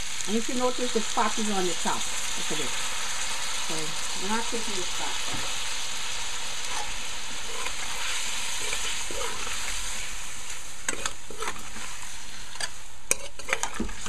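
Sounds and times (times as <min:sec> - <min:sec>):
meat sizzling in a pot: 0:00.0 - 0:14.0
metal spoon stirring: 0:10.9 - 0:14.0.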